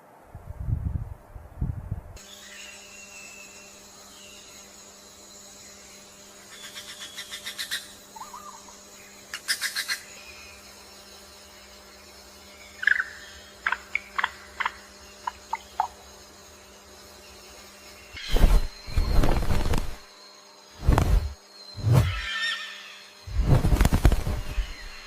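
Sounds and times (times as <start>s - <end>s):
bird calls: 21.7s - 23.2s, 23.9s - 25.0s.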